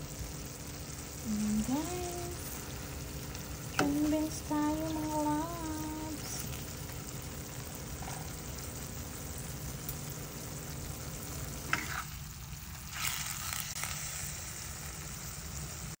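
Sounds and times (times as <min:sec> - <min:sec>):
food sizzling in a pan: 0:00.0 - 0:16.0
stirring in a pan: 0:06.2 - 0:14.0.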